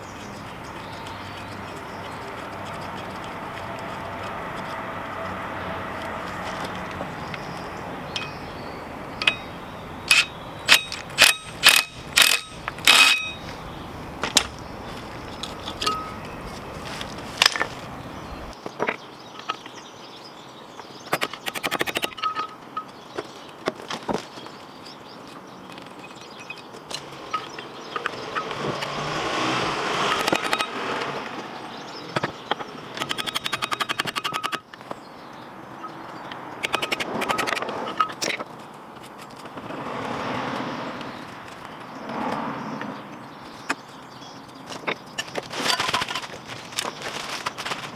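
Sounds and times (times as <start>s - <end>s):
metal tools knocking on metal: 6.0s - 18.5s, 21.5s - 23.0s, 30.0s - 31.1s
quick clicks: 9.2s - 13.6s, 21.1s - 22.2s, 30.0s - 31.1s, 33.0s - 34.6s, 36.6s - 38.4s.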